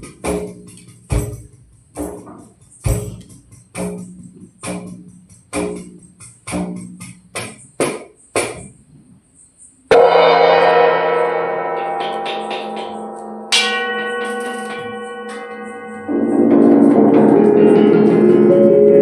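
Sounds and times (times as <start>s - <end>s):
frame drum with jingles beaten: 0.0s - 8.7s, 11.6s - 19.0s
large bell ringing: 9.9s - 19.0s.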